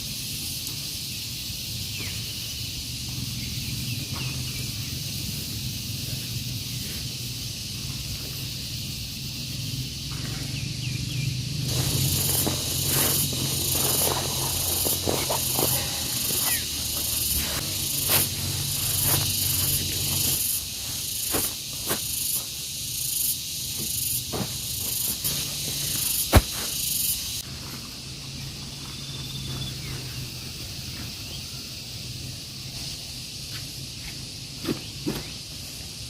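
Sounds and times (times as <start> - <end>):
high-pitched insect buzz: 0.0 - 27.5.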